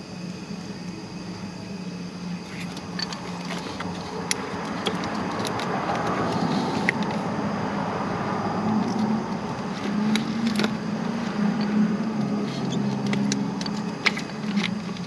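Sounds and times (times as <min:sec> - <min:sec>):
steady low hum: 0:00.0 - 0:15.0
handling noises: 0:02.4 - 0:07.4, 0:08.6 - 0:15.0.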